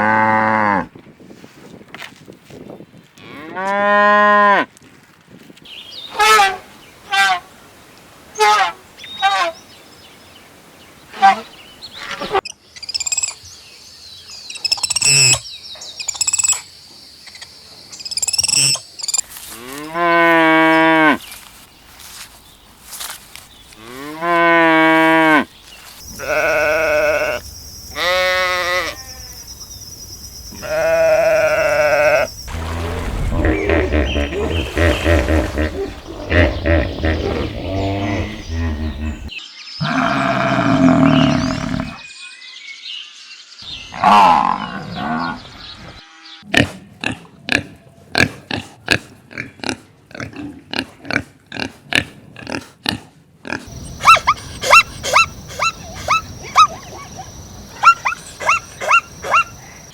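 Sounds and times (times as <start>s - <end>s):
small birds chirping: 11.3s - 19.7s, 27.4s - 44.0s, 53.7s - 59.9s
farm animals calling: 26.1s - 29.3s, 30.5s - 42.0s, 53.6s - 59.9s
cow mooing: 30.6s - 42.0s.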